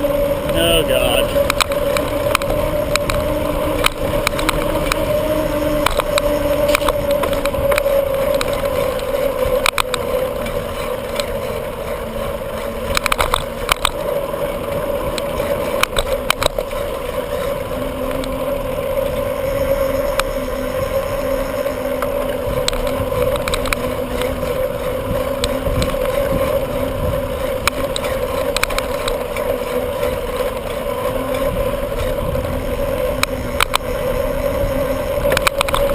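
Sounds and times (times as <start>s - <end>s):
bicycle clicks and rattles: 0.0s - 0.6s, 1.3s - 35.9s
bicycle tyre hum on road: 0.0s - 35.9s
wind rumble on microphone: 1.2s - 35.9s.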